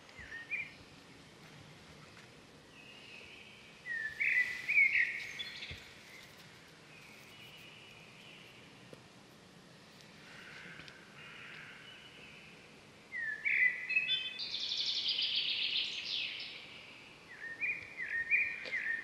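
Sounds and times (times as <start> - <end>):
steady outdoor hiss: 0.0 - 19.0
wild birds whistling: 0.1 - 0.8, 2.7 - 6.3, 10.3 - 19.0.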